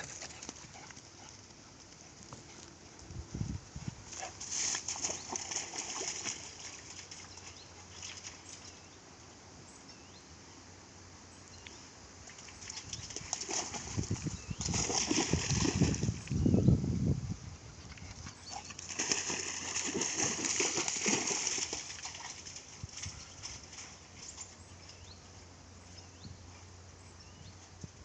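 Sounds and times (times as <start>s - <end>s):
dog paws running on ground: 0.0s - 8.8s, 12.6s - 16.4s, 18.0s - 25.2s.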